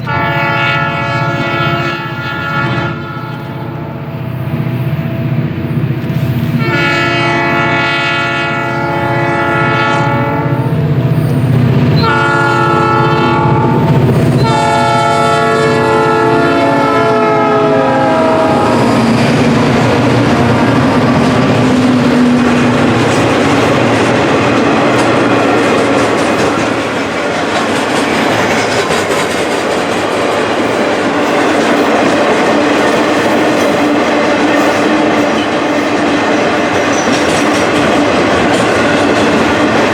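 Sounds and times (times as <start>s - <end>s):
locomotive horn blasts: 0.0s - 4.0s, 6.6s - 10.8s, 12.0s - 18.9s
train wheels clacking over rail joints: 4.9s - 39.9s.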